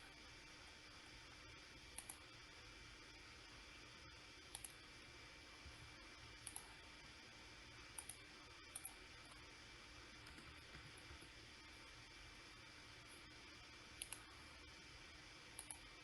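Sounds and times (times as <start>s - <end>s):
low steady hiss: 0.0s - 16.0s
computer mouse double-clicks: 8.0s - 9.0s, 14.0s - 14.3s, 15.6s - 15.9s.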